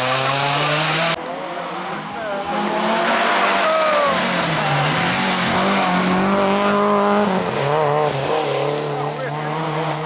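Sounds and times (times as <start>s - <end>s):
rally car engine revving: 0.0s - 10.0s.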